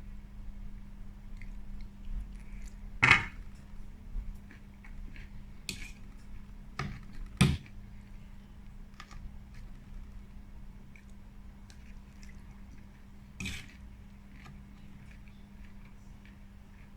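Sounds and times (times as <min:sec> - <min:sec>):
cutlery knocking against a dish: 0:03.0 - 0:03.4.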